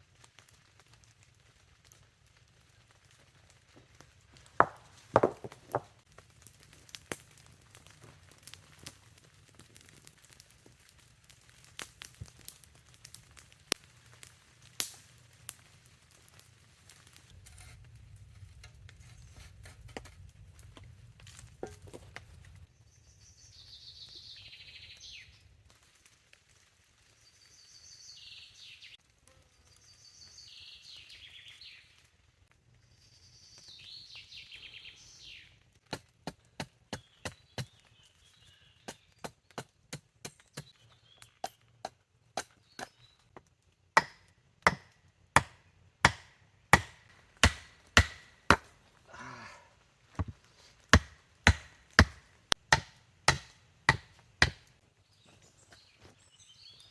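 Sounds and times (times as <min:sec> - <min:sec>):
chopping blows on wood: 0:44.0 - 0:48.7, 0:51.0 - 0:54.7
wood rasping strokes: 0:50.2 - 0:54.6.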